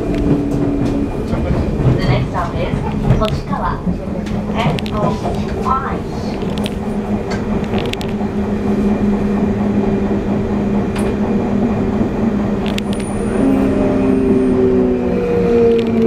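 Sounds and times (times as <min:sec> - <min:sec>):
train rumble: 0:00.0 - 0:16.0
clicks and creaks: 0:04.2 - 0:08.2.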